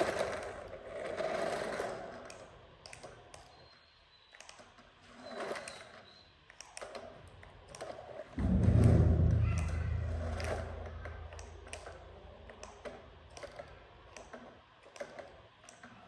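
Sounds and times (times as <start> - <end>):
toy electric motors whirring: 0.0 - 8.3
loud low hum: 8.4 - 13.4.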